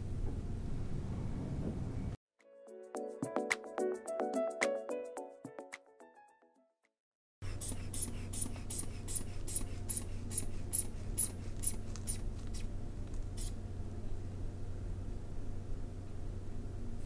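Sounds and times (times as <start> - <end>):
hand bulb squeezing air hiss: 7.4 - 13.6
steady low hum: 7.4 - 17.0.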